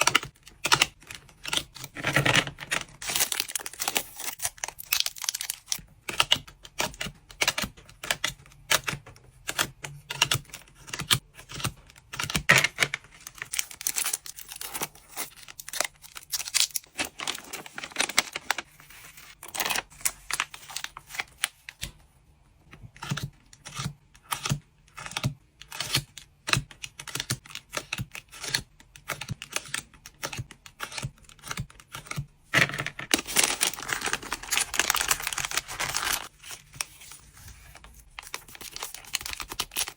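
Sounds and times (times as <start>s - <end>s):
plastic packaging crinkling: 1.9s - 5.8s, 13.2s - 20.5s, 33.1s - 39.9s
cards clicking and tapping: 23.0s - 39.9s.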